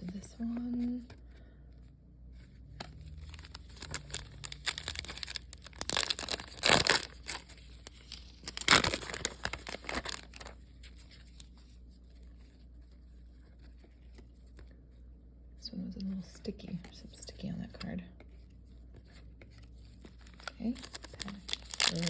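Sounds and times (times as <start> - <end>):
trading cards rustling: 0.0 - 1.2, 2.4 - 14.8, 17.7 - 22.0
cards tearing rasps: 3.2 - 10.5, 20.8 - 22.0.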